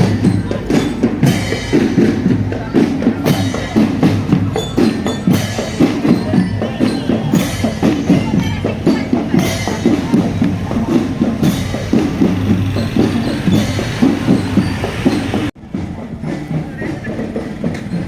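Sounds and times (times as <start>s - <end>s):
drums beating fast rhythm: 0.0s - 18.0s.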